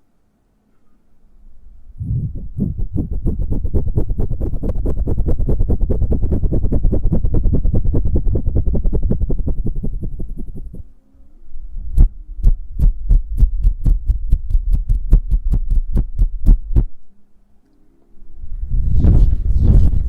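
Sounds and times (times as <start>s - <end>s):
soft hand pulses: 1.9s - 10.9s
deep thumps with sharp clicks: 11.9s - 17.0s.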